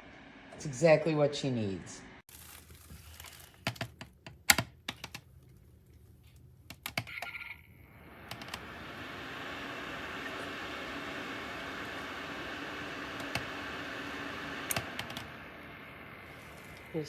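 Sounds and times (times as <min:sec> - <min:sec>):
heater fan hissing: 0:07.8 - 0:17.0.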